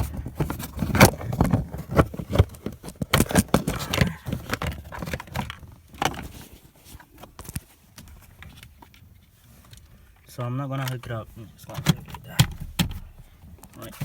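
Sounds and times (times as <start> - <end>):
plastic trim clicking and scraping: 10.8 - 13.9.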